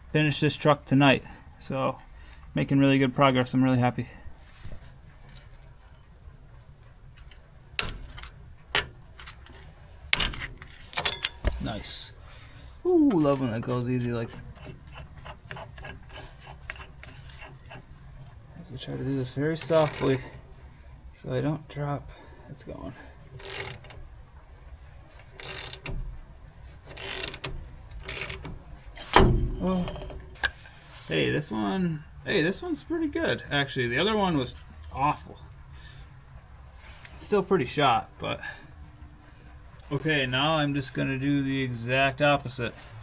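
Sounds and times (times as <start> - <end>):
tools clinking on steel: 7.2 - 11.8
hand ratchet clicking: 19.6 - 20.3, 23.3 - 24.0, 25.2 - 25.9, 26.9 - 29.1.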